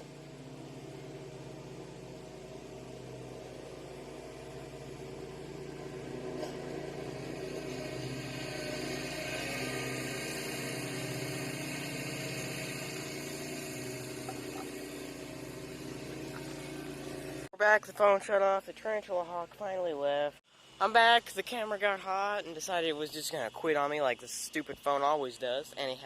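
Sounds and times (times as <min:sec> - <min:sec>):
machine hum with low drone: 0:00.0 - 0:19.6.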